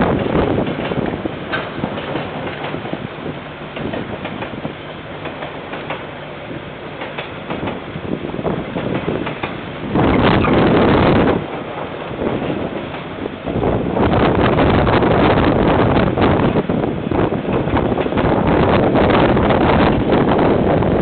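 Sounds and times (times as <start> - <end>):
wheel clicks over rail joints: 0.0 - 13.7, 17.3 - 20.3
freight train wagons rumbling: 0.0 - 21.0
rush of noise: 0.0 - 21.0.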